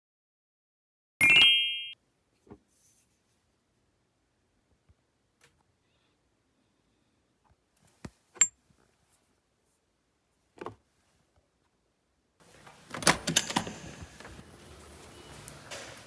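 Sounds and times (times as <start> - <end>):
background hiss: 12.4 - 16.0.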